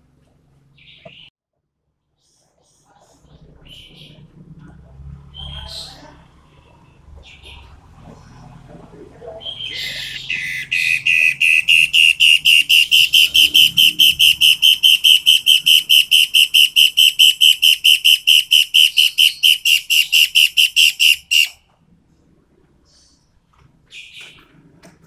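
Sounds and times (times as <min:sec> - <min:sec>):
bird whistling rapid notes: 0:09.5 - 0:21.6.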